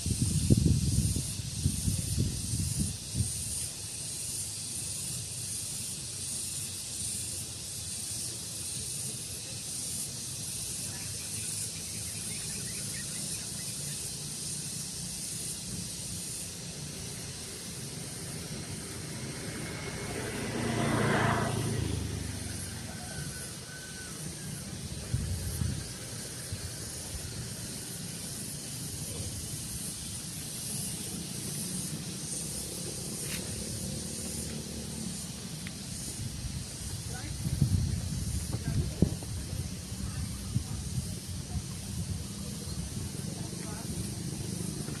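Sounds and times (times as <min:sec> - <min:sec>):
wind buffeting microphone: 0:00.0 - 0:03.6, 0:24.6 - 0:27.8, 0:35.8 - 0:45.0
breeze hissing: 0:00.0 - 0:45.0.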